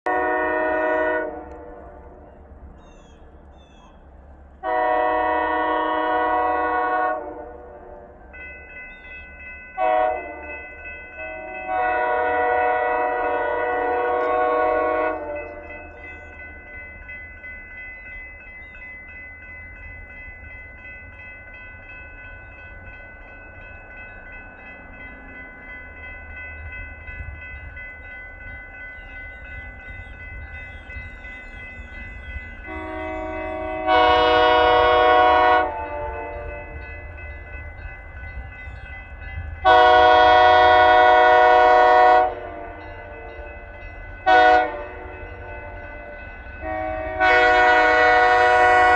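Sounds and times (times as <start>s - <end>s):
locomotive air horn blasts: 0.0s - 2.3s, 4.6s - 8.2s, 9.8s - 16.0s, 32.6s - 36.8s, 39.6s - 43.5s, 44.2s - 48.9s
low train rumble: 0.0s - 48.9s.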